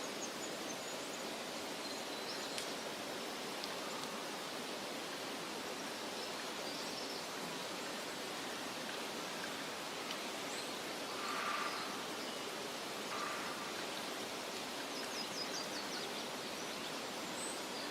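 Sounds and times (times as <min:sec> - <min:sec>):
rustle: 0:00.0 - 0:17.9
faint bird chirps: 0:13.1 - 0:14.0.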